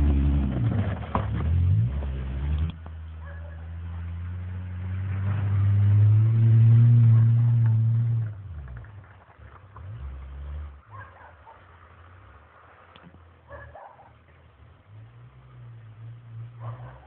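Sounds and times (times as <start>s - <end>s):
car engine revving under load: 0.0s - 13.4s.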